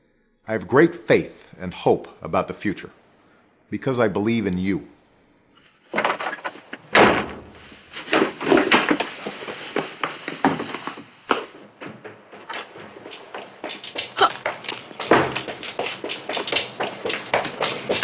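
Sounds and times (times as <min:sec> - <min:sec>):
knocking and banging on wood: 0:13.6 - 0:18.0.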